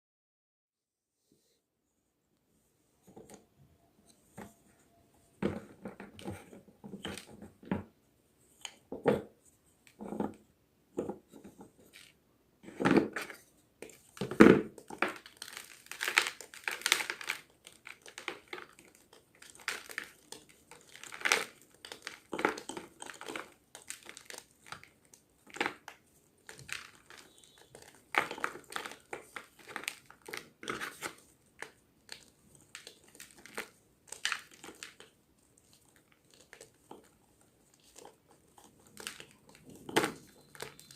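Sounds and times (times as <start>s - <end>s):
chalk crunching and crumbling: 11.5s - 40.9s.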